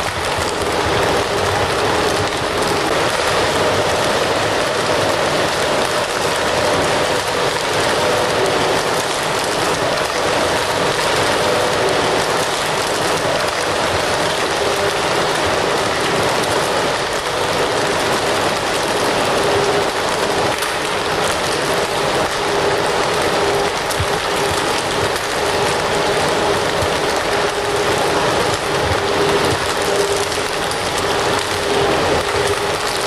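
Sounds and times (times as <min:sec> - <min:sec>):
fire crackling: 0:00.0 - 0:33.0.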